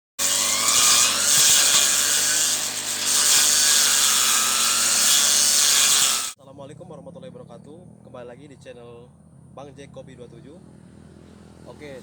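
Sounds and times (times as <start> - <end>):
brush cutter cutting weeds: 0.2 - 6.4.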